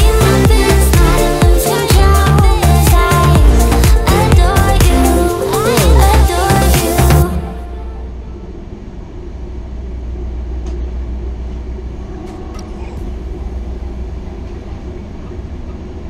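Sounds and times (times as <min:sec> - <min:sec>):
train rumble from inside carriage: 0:08.1 - 0:16.0.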